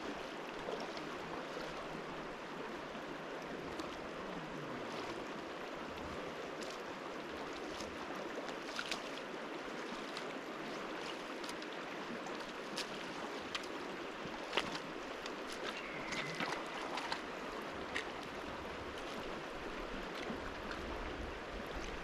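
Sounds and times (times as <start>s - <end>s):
river water rushing: 0.0s - 22.0s
faint sharp splashes: 14.4s - 17.3s.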